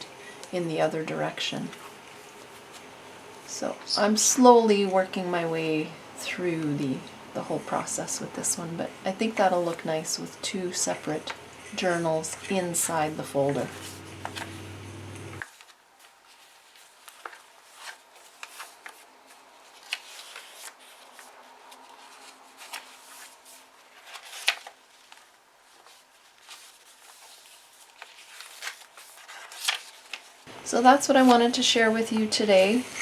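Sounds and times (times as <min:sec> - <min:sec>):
paper and card rustling: 0:11.2 - 0:14.6, 0:15.4 - 0:33.0.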